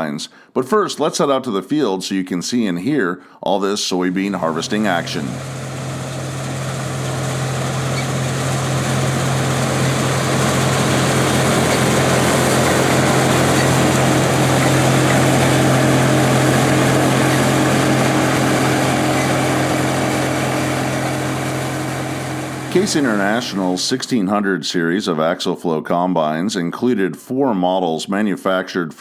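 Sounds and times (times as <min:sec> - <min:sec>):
threshing machinery: 0:04.3 - 0:23.7
diesel engine running under load: 0:04.4 - 0:23.7.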